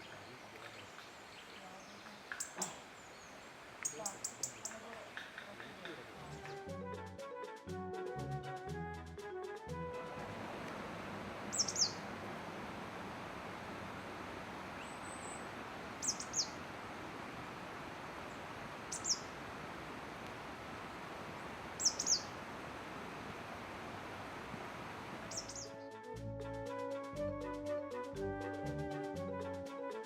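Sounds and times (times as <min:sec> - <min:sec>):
steady background hiss: 0:00.0 - 0:06.7, 0:10.0 - 0:25.8
small bird high thin calls: 0:02.2 - 0:05.4, 0:11.5 - 0:12.1, 0:14.8 - 0:16.6, 0:18.9 - 0:19.3, 0:21.8 - 0:22.4, 0:25.3 - 0:25.7.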